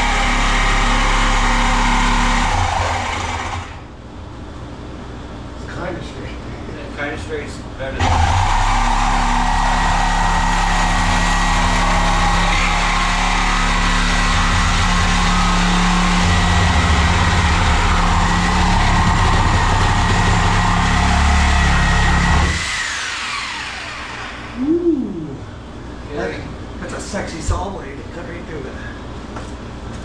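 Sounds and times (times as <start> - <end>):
power saw cutting: 0.0 - 3.8, 8.0 - 24.6.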